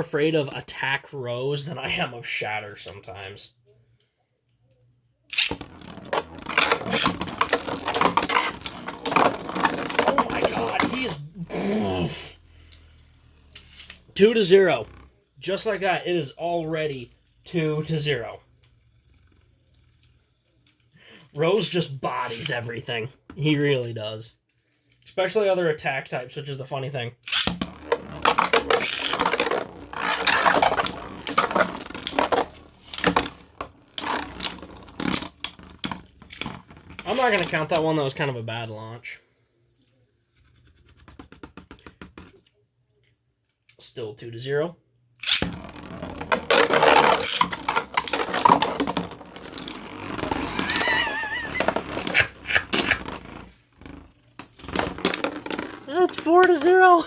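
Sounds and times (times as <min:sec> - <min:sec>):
spinning tops rattling scrape: 0:05.3 - 0:11.2, 0:11.8 - 0:20.4, 0:27.3 - 0:38.1, 0:45.2 - 0:57.0.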